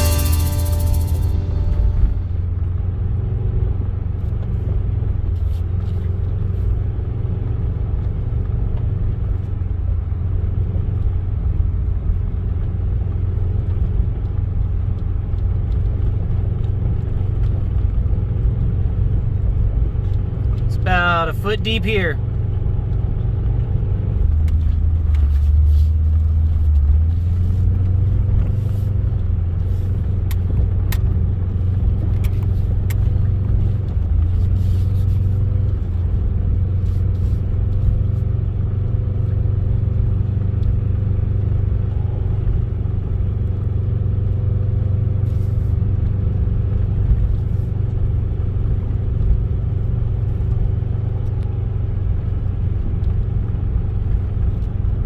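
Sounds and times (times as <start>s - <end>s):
vehicle engine low rumble: 0.0s - 55.0s.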